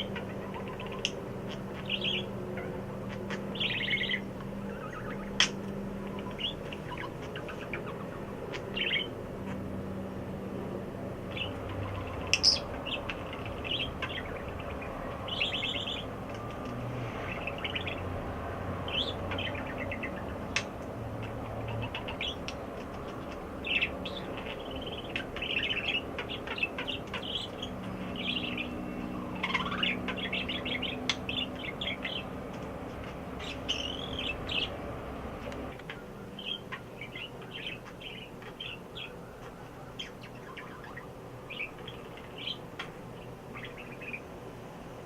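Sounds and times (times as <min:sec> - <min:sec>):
pet bird chirping and trilling: 0:00.0 - 0:10.3, 0:11.1 - 0:35.0, 0:35.7 - 0:44.4.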